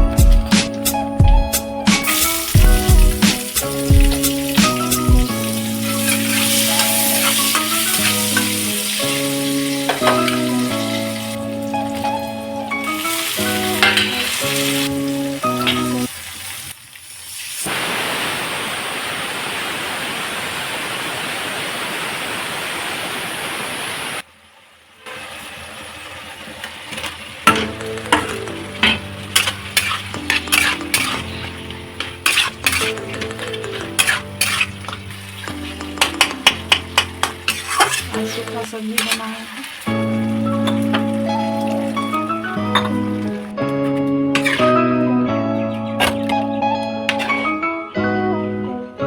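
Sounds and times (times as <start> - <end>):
background music: 0.0 - 16.1, 27.5 - 39.0, 39.9 - 49.0
food sizzling in a pan: 0.2 - 19.6, 25.0 - 43.5, 44.4 - 44.9
spatula scraping a pan: 5.8 - 9.0, 26.9 - 39.4, 44.4 - 44.8, 47.1 - 47.5.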